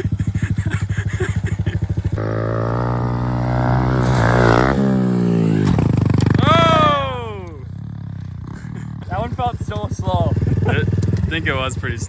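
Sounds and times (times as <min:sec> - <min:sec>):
motorbike engine idling and revving: 0:00.0 - 0:12.0.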